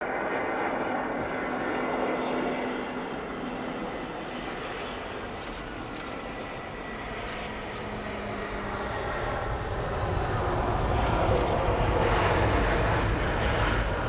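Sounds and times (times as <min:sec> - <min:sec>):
jet engines roaring: 0:00.0 - 0:14.0
short light clicks: 0:05.1 - 0:06.5, 0:07.2 - 0:08.7, 0:11.3 - 0:11.6.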